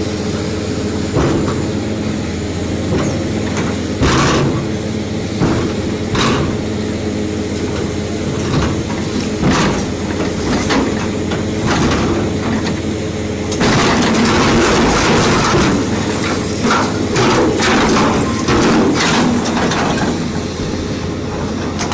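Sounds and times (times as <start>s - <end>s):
diesel machinery engine drone: 0.0s - 21.9s
rushing grinding noise: 0.0s - 21.9s
clanks and knocks: 1.1s - 1.7s, 2.9s - 4.8s, 5.4s - 6.6s, 8.3s - 12.8s, 13.5s - 20.2s, 21.4s - 21.9s.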